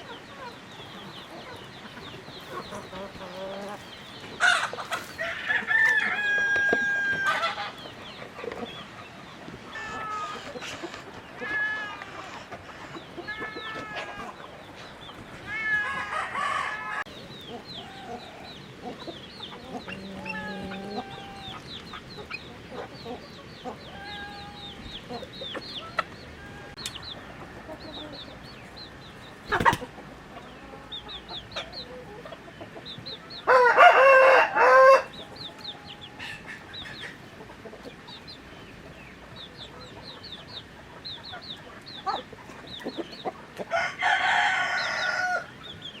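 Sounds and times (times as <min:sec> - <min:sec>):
chickens clucking and chirping: 0:00.0 - 0:46.0
rooster crowing: 0:05.2 - 0:07.7, 0:15.5 - 0:17.1, 0:33.5 - 0:35.2, 0:43.7 - 0:45.5.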